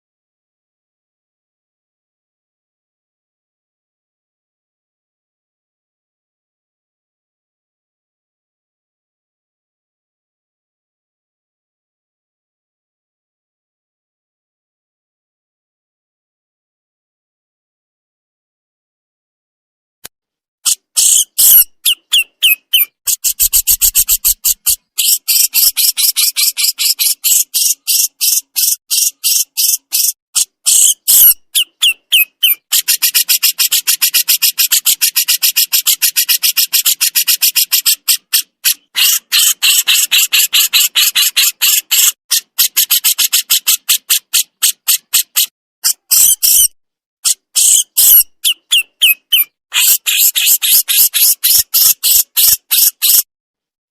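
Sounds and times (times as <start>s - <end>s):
bird harsh scratchy rattle: 22.8s - 30.1s, 32.5s - 46.6s.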